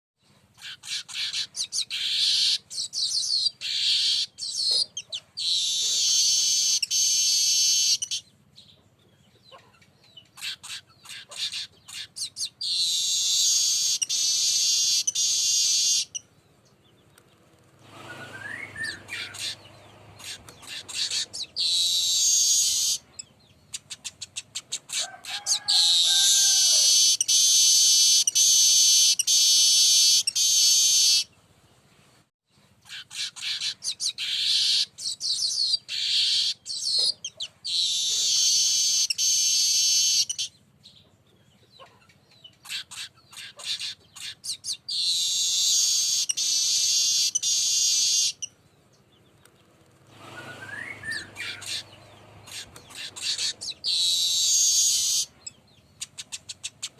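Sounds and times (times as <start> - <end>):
lower pitched bird call: 18.0 - 31.3, 50.2 - 56.9.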